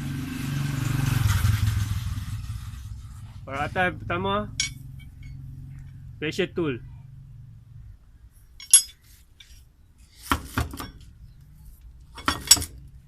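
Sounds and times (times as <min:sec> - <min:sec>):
metal hand tools clinking: 0:04.5 - 0:05.5, 0:08.6 - 0:09.6, 0:12.1 - 0:12.8.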